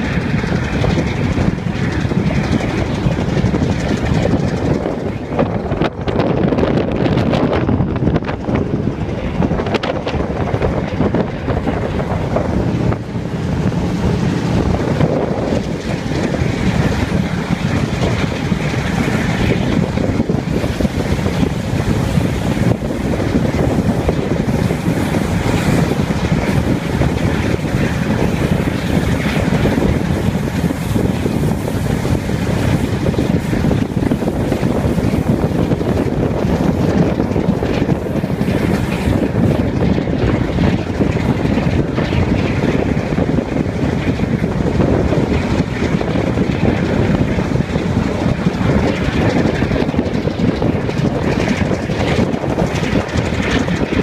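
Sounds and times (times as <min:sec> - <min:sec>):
train running on rails: 0:00.0 - 0:54.0
wind rushing over microphone: 0:00.0 - 0:54.0.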